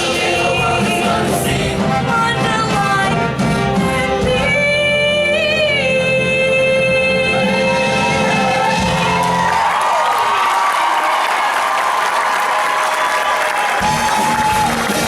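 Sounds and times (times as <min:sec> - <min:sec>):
music with singing voices: 0:00.0 - 0:09.6.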